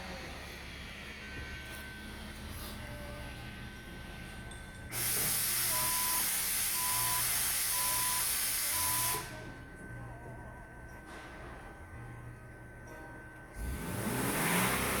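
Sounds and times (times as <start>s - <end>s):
loud pressurized hiss: 4.9s - 9.2s
short beeps: 5.7s - 9.4s.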